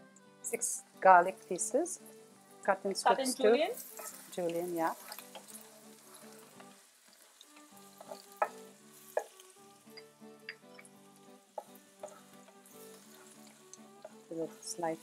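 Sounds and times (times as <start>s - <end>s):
soft background music: 0.0s - 15.0s
food sizzling in hot oil: 0.5s - 15.0s
spatula stirring in pan: 3.8s - 9.8s, 10.8s - 15.0s.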